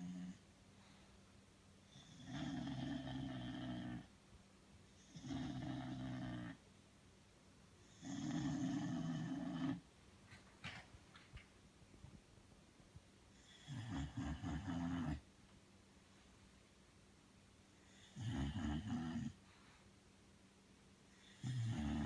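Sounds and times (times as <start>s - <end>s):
dog snoring: 0.0s - 0.4s, 1.9s - 4.1s, 4.9s - 6.6s, 7.8s - 9.8s, 13.3s - 15.2s, 17.8s - 19.4s, 21.1s - 22.0s.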